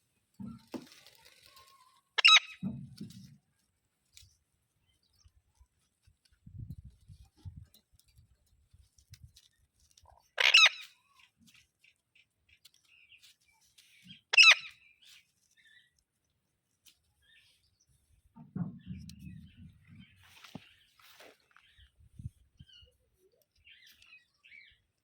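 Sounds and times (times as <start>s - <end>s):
parrot screeching: 2.2s - 2.6s, 10.4s - 10.8s, 14.3s - 14.7s
faint low knocks: 18.2s - 20.4s.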